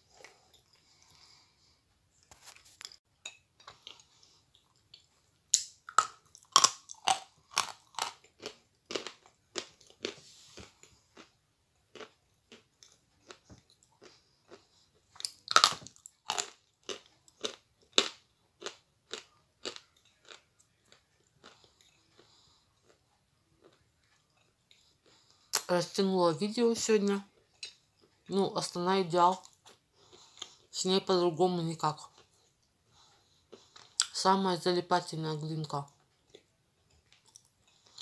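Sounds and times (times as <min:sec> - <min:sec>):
crunchy chewing of dry clay: 0:03.6 - 0:25.6, 0:36.2 - 0:38.0.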